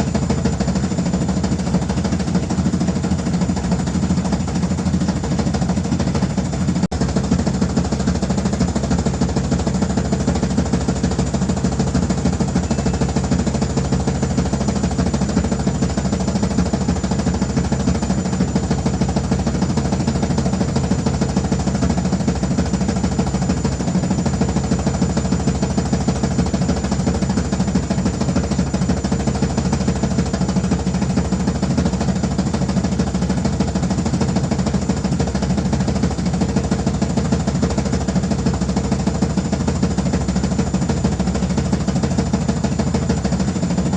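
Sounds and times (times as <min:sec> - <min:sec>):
washing machine running: 0:00.0 - 0:43.9.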